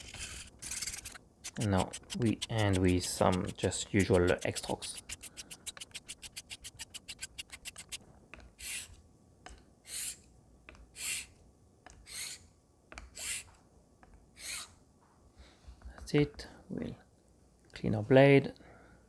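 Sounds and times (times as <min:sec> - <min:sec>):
razor blade rasping on sharpening plate: 0:00.0 - 0:08.0.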